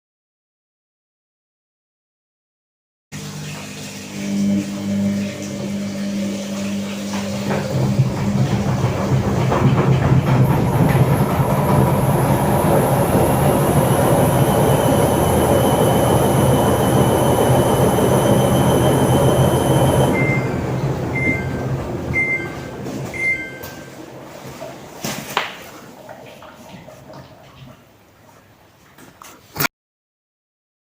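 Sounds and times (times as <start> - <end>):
washing machine running: 3.2 - 29.0
washing machine beeps: 3.7 - 25.0
high whine: 4.0 - 24.4.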